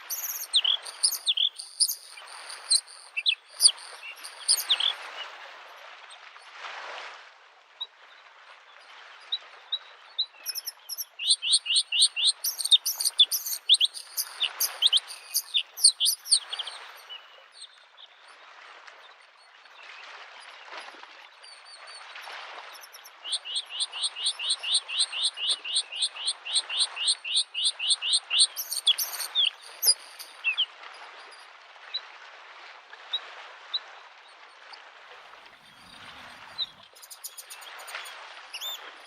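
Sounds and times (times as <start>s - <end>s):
bird singing chirps and trills: 0.0s - 5.2s, 10.4s - 17.5s, 23.2s - 30.7s, 35.6s - 38.9s
small waves washing onto shore: 0.0s - 39.0s.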